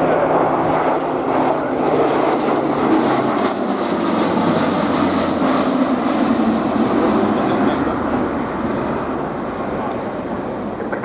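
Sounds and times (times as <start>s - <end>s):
turboprop aircraft engines droning: 0.0s - 11.0s.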